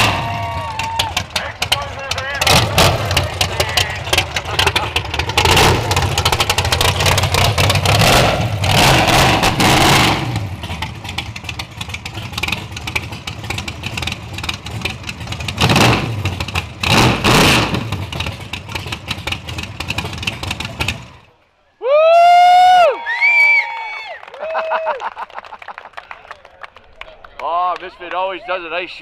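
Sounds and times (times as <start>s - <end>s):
race car engine revving: 0.0s - 21.3s.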